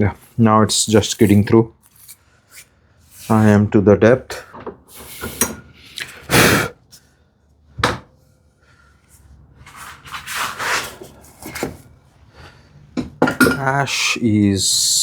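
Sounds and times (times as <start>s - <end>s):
wood scraping on a bench: 9.6s - 11.8s.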